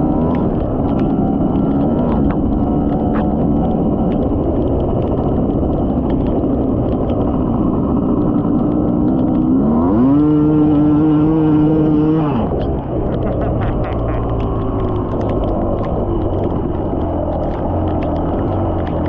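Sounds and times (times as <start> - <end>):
dirt bike engine revving: 7.4 - 12.7.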